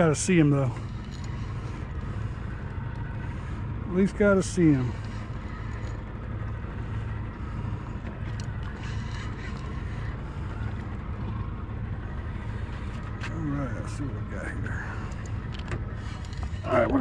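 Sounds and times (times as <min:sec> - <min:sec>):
boat motor idling: 0:00.0 - 0:17.0
wind: 0:00.0 - 0:17.0.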